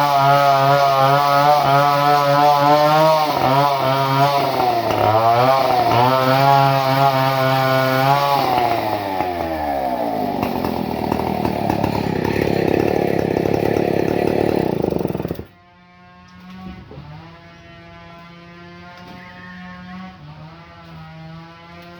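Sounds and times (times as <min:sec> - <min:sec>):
chainsaw engine revving: 0:00.0 - 0:15.5.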